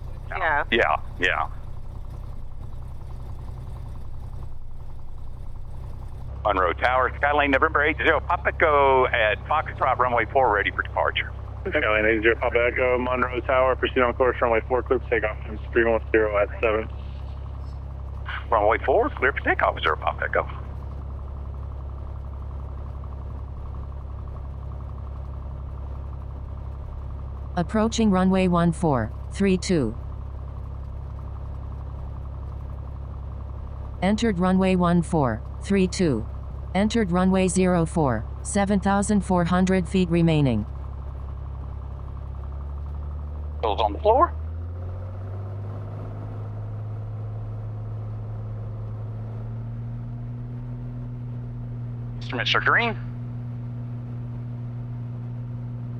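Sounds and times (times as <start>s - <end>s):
faint fine ticking: 0.0s - 28.3s
aircraft engine droning: 0.0s - 55.9s.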